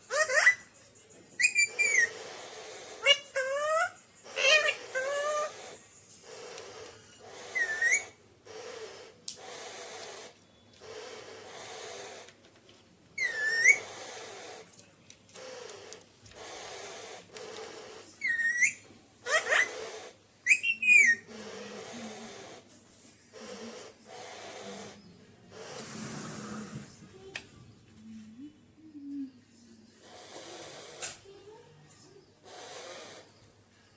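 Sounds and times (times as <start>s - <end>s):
parakeet whistles: 0.1s - 0.7s, 1.4s - 5.6s, 6.3s - 12.1s, 13.2s - 14.3s, 18.2s - 21.3s
parakeet hissing: 1.4s - 12.4s, 13.2s - 14.7s, 15.4s - 22.7s, 23.3s - 27.0s, 30.0s - 31.2s, 32.4s - 33.4s.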